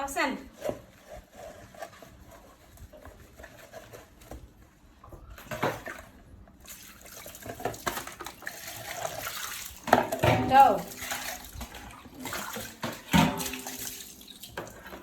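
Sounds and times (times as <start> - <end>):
water splashing and trickling: 6.6 - 15.0.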